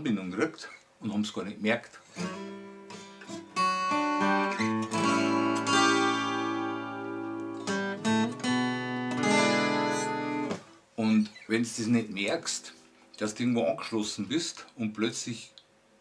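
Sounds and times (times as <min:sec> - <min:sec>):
plucked string instrument strums: 0:02.2 - 0:10.7.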